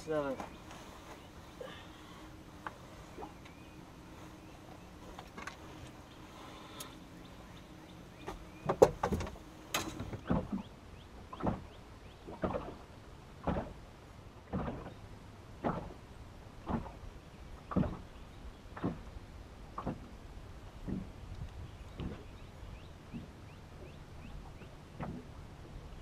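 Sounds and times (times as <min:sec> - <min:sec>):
water slapping against boat hull: 0:08.2 - 0:13.8, 0:14.4 - 0:15.0, 0:15.6 - 0:16.0, 0:16.6 - 0:19.1, 0:19.7 - 0:20.2, 0:20.8 - 0:21.2, 0:22.0 - 0:22.4, 0:24.6 - 0:25.3.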